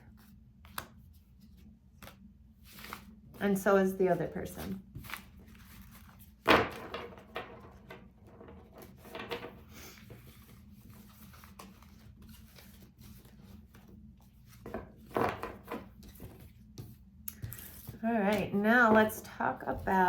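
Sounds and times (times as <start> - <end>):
cards rustling: 10.0 - 19.1.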